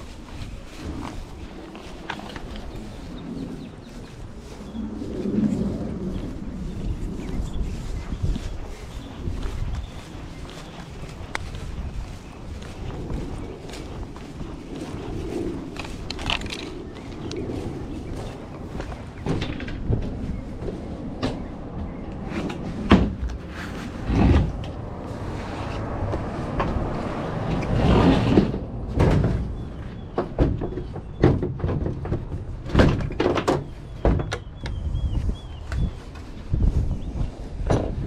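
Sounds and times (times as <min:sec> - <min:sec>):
knocks and clunks: 0:19.2 - 0:21.8, 0:22.4 - 0:23.4, 0:27.5 - 0:34.8, 0:37.6 - 0:38.0.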